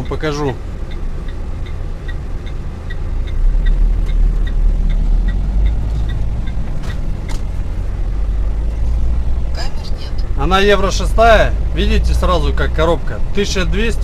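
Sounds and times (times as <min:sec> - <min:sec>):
light ticking: 0:00.0 - 0:09.3
diesel truck engine running: 0:00.0 - 0:14.0.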